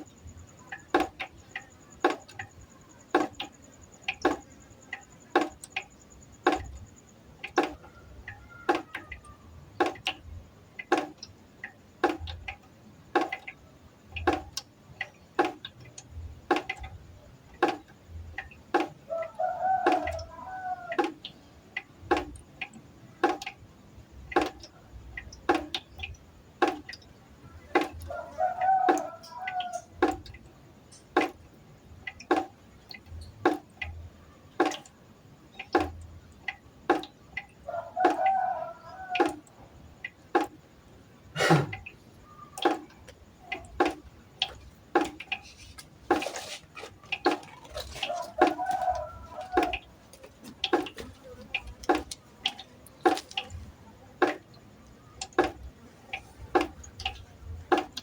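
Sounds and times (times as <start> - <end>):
water dripping into a pot: 0.0 - 58.0.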